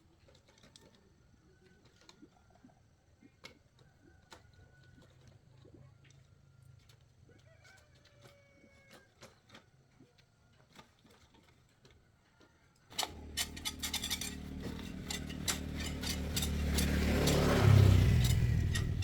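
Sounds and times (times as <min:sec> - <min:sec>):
mechanical whirring with clicking: 0:12.9 - 0:19.0
small metal parts clicking: 0:12.9 - 0:19.0.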